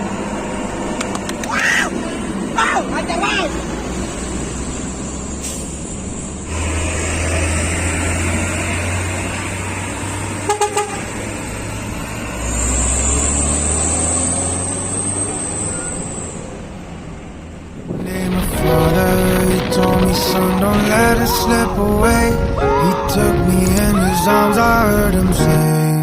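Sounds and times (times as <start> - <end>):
truck engine rumbling: 0.0 - 26.0
horn toots: 10.4 - 11.2.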